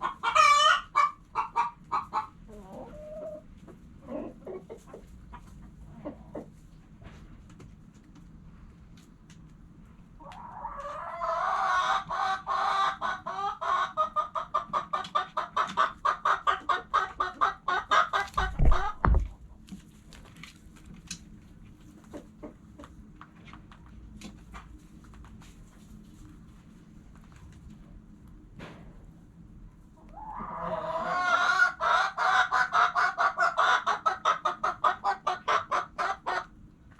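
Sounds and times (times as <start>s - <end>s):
hen clucking: 0.0s - 6.8s, 10.2s - 19.6s, 22.0s - 23.0s, 30.0s - 36.6s.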